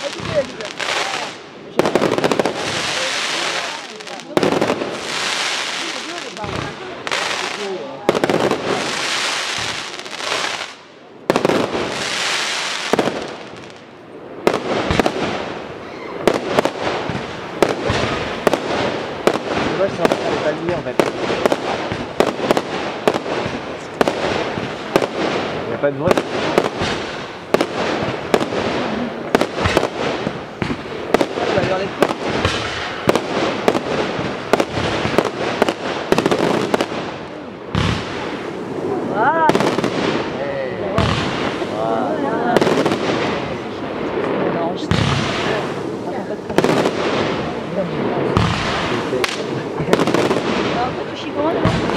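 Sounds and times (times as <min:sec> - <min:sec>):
hiss of burning fireworks: 0:00.0 - 0:51.9
firework shells bursting: 0:48.2 - 0:51.9.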